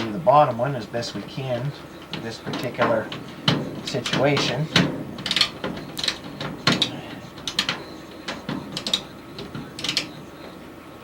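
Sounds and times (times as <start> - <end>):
hand ratchet clicking: 3.9 - 7.8.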